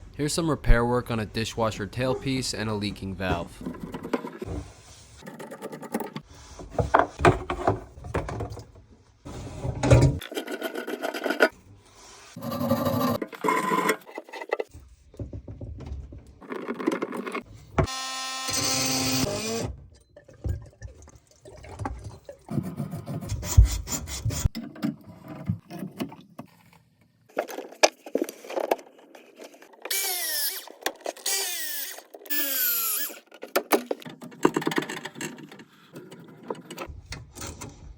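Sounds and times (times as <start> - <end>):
plumbing tool handling sounds: 3.2 - 8.8, 13.2 - 17.9, 24.4 - 37.8.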